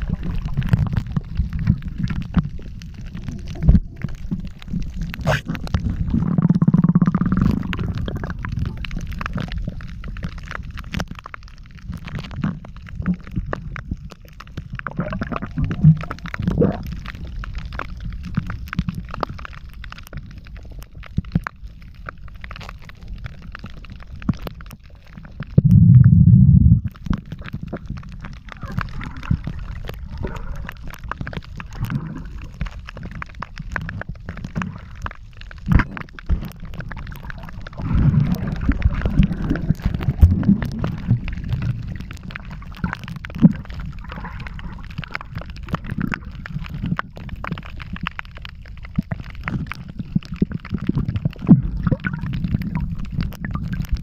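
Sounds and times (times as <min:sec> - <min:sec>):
muffled water sloshing and gurgling: 0:00.0 - 0:54.0
low rumble: 0:25.5 - 0:30.9.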